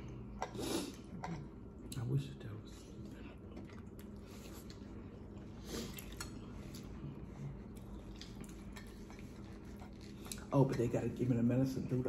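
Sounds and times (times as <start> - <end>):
low steady hum: 0.0 - 12.0
faint chewing: 2.8 - 10.6.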